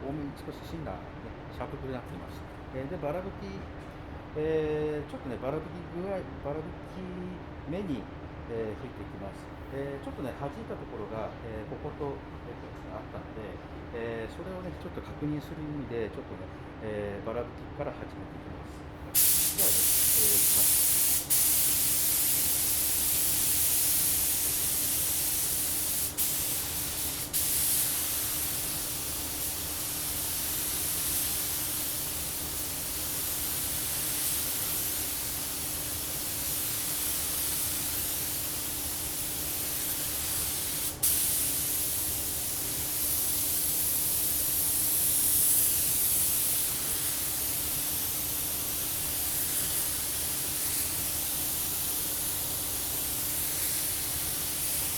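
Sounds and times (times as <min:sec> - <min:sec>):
air spray gun hissing: 0:19.1 - 0:54.9.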